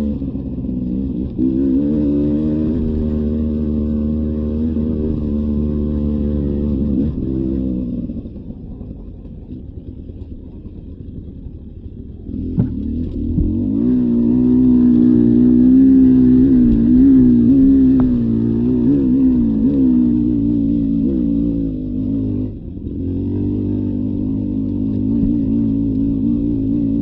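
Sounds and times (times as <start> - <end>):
dirt bike engine running: 0.0 - 27.0.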